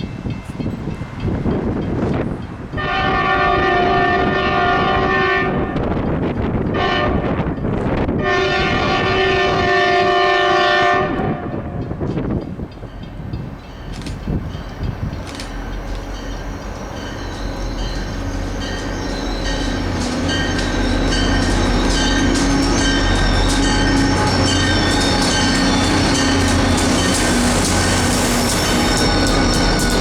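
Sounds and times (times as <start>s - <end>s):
train engine drone: 0.0s - 30.0s
wheel clicks over rail joints: 13.8s - 16.1s
high wheel squeal: 14.8s - 30.0s.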